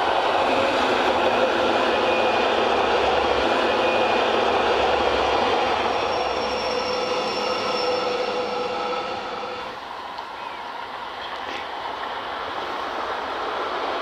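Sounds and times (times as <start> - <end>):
train rolling rumble: 0.0 - 14.0
high wheel squeals: 5.9 - 9.7.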